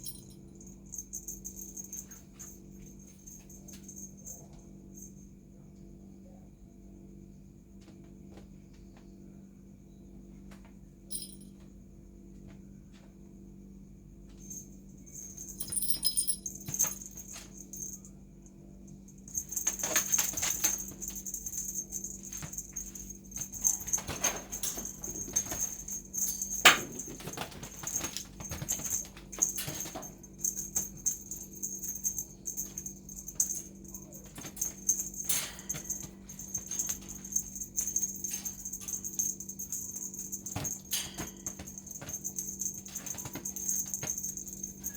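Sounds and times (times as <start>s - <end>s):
jingle bell rattling: 0.0s - 5.2s, 11.1s - 11.5s, 14.4s - 18.1s, 19.0s - 44.9s
steady low hum: 0.0s - 44.9s.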